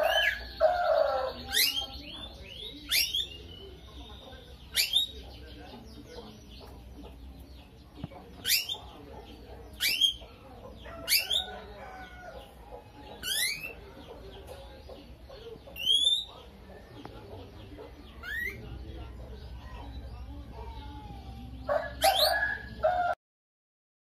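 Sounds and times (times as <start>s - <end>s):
lovebird calling: 0.0s - 5.5s, 8.3s - 12.6s, 13.2s - 13.8s, 15.0s - 16.6s, 17.9s - 18.7s
soft bird chirping: 0.0s - 22.7s.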